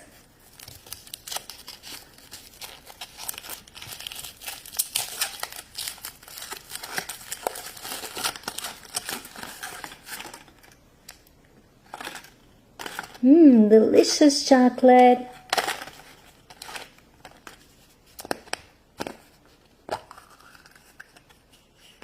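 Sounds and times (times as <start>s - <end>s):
foil wrapper tearing and crinkling: 0.4s - 11.2s, 11.9s - 13.2s, 15.4s - 19.2s.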